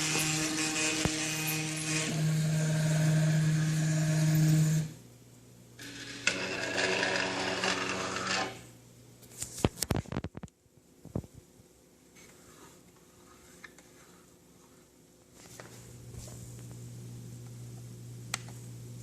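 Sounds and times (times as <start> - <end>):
small electric motor whirring: 0.0 - 5.0, 5.8 - 8.6.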